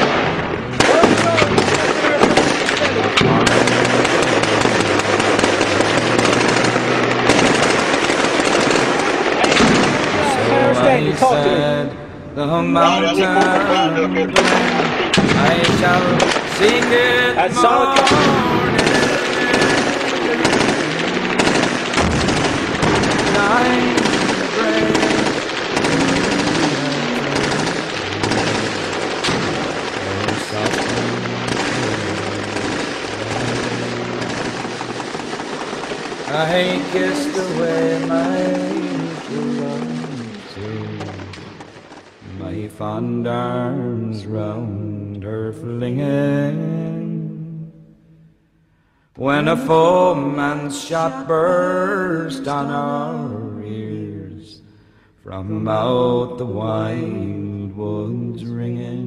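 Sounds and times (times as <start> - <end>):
automatic gunfire: 0.0 - 11.6, 12.8 - 42.3
machine-gun fire: 0.0 - 11.8, 12.8 - 42.7
low hum: 13.6 - 41.6.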